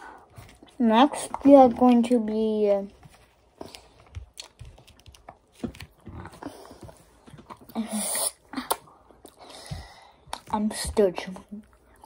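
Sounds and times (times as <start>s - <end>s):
chewing gummy candy: 3.6s - 7.8s.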